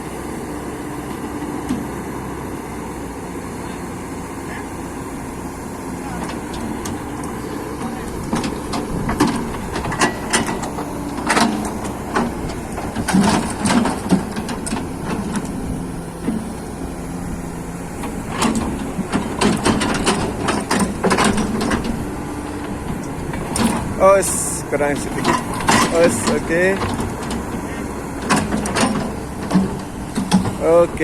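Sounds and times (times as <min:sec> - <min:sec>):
low engine hum: 0:00.0 - 0:31.0
metal knocks and clanks: 0:06.2 - 0:15.6, 0:18.0 - 0:22.0, 0:25.0 - 0:30.9.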